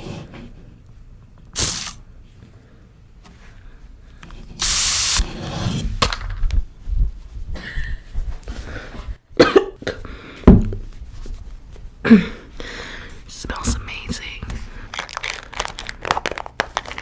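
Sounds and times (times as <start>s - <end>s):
person coughing: 9.4s - 10.0s.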